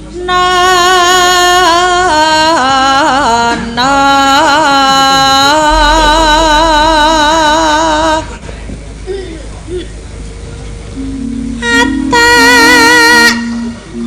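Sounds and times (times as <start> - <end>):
woman singing with vibrato: 0.0 - 8.4, 11.6 - 14.0.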